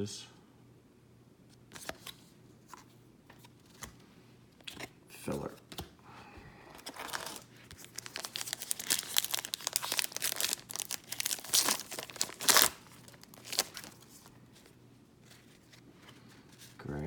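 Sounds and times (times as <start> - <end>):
card pack wrapper crinkling and tearing: 6.8 - 14.3.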